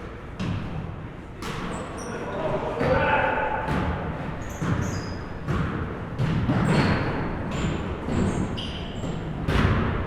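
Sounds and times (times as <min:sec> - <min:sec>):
sneaker squeaks: 0:01.4 - 0:02.5, 0:04.3 - 0:09.6
basketball bouncing on floor: 0:03.7 - 0:08.4.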